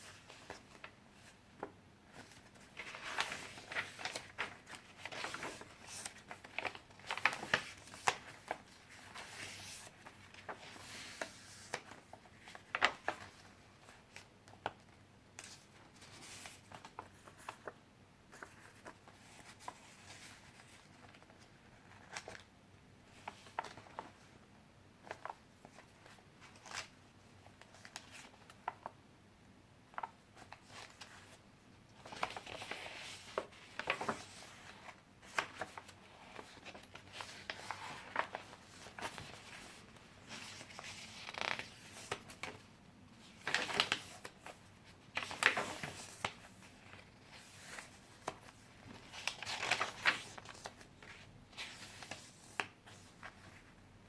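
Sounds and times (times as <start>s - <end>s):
paper rustling: 0.0s - 14.8s, 32.0s - 42.6s, 43.2s - 53.7s
pages turning: 2.1s - 14.8s, 23.2s - 24.2s, 32.0s - 42.6s, 43.2s - 53.7s.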